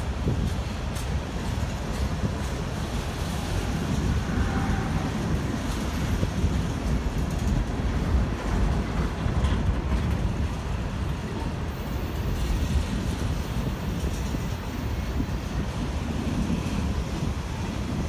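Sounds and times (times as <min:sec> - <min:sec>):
train wheels rumbling on track: 0:00.0 - 0:18.0.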